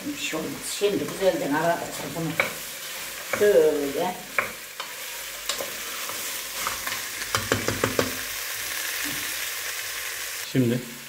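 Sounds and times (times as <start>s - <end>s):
chickpeas sizzling in oil: 0.0s - 11.0s
wooden spoon knocking against pot: 7.3s - 8.2s.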